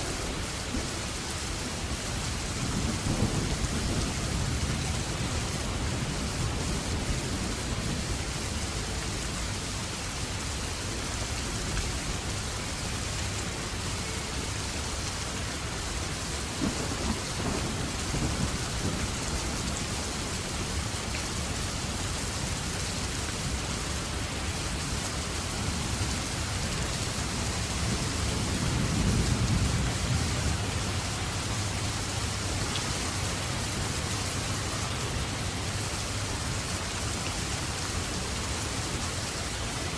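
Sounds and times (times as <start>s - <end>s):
heavy rain: 0.0s - 39.9s
low rumble of thunder: 0.5s - 10.5s, 13.8s - 36.4s.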